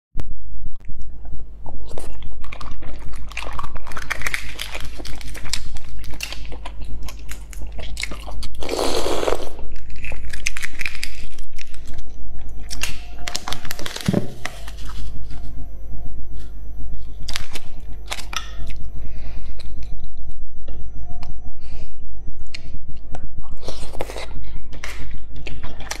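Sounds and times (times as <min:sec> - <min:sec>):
chewing boiled egg: 0:01.0 - 0:15.2, 0:23.5 - 0:26.0.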